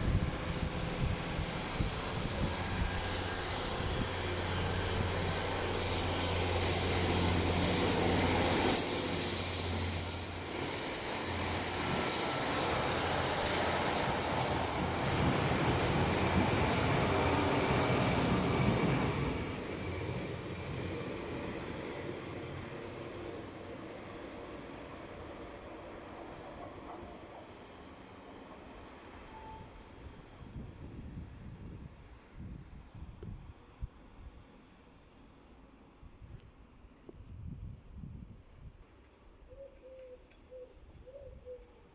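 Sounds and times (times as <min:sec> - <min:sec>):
train running on track: 0:00.0 - 0:36.0
high-pitched wheel squeal: 0:08.7 - 0:15.0.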